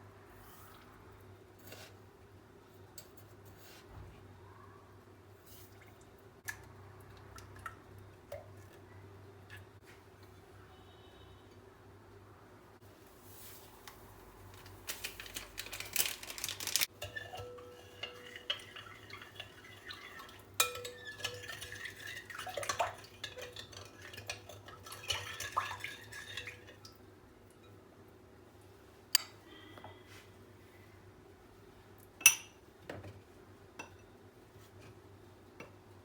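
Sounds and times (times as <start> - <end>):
dishes and utensils clattering: 16.9 - 26.8.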